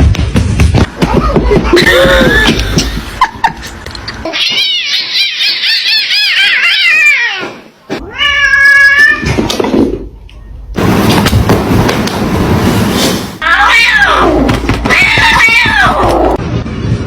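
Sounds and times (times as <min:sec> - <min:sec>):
cat meowing: 0:04.2 - 0:09.3, 0:13.4 - 0:16.4.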